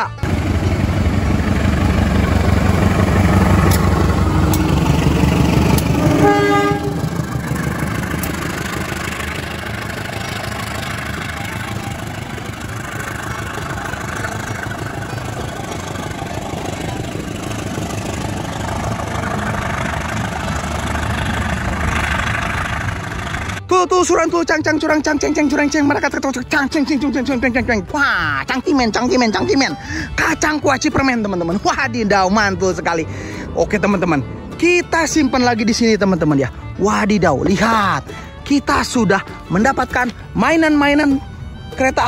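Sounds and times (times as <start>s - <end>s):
locomotive engine rumbling: 0.0s - 42.0s
coach wheels rolling on rails: 0.2s - 23.7s
train horn note: 5.7s - 8.4s.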